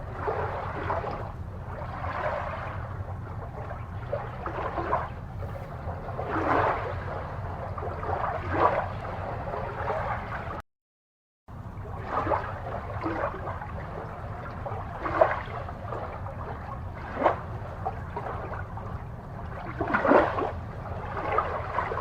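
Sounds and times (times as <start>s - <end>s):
aquarium water bubbling: 0.0s - 10.6s, 11.5s - 22.0s
low hum: 0.0s - 10.6s.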